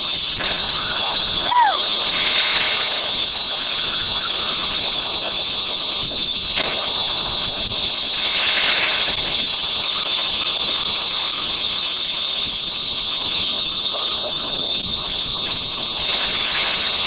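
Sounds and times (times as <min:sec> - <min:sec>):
fireworks hissing: 0:00.0 - 0:17.0.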